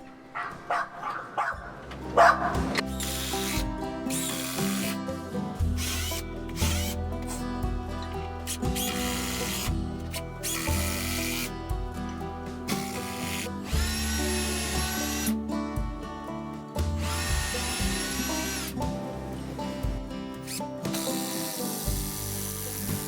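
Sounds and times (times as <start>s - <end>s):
background music: 0.0s - 23.0s
power drill drilling into wood: 2.8s - 5.1s, 5.7s - 7.4s, 8.5s - 11.5s, 12.7s - 15.4s, 17.0s - 18.9s, 20.4s - 23.0s.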